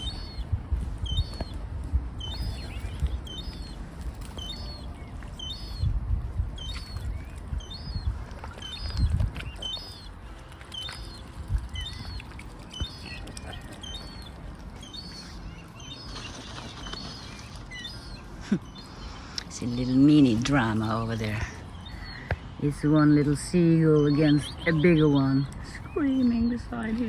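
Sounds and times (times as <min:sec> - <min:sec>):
gull calling: 0:00.0 - 0:01.5, 0:06.6 - 0:10.2
low rumbling bursts: 0:00.0 - 0:27.0.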